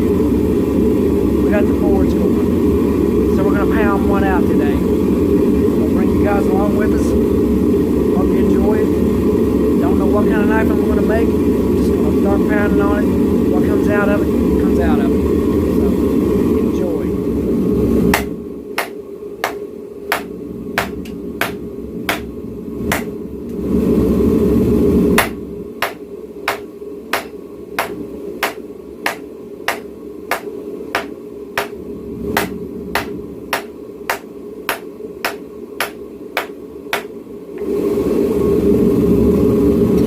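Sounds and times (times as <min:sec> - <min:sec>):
forge roaring: 0:00.0 - 0:40.0
hammer striking hot steel: 0:18.1 - 0:22.3, 0:22.9 - 0:23.2, 0:25.2 - 0:31.8, 0:32.4 - 0:37.1.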